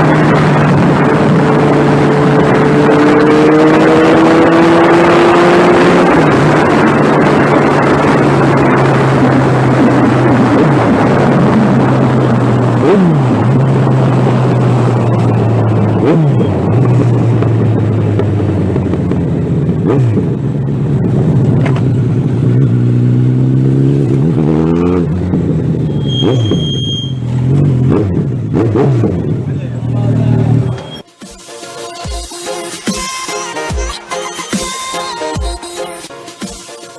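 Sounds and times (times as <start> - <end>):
motorcycle engine revving: 0.0 - 31.0
wind and road rush: 0.0 - 31.1
short high beep: 25.9 - 27.3, 30.7 - 31.0.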